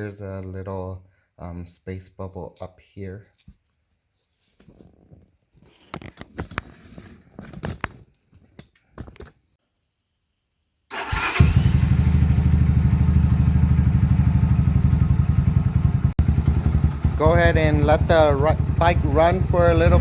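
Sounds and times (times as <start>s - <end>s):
motorcycle engine idling: 11.0s - 20.0s.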